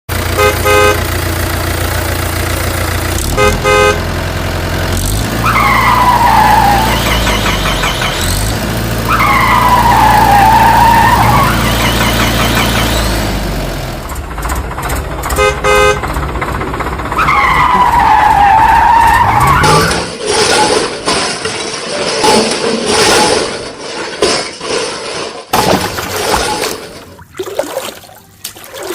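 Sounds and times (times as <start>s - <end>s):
short horn beeps: 0.3s - 1.1s, 3.2s - 4.0s
long dipping whines: 25.6s - 28.9s.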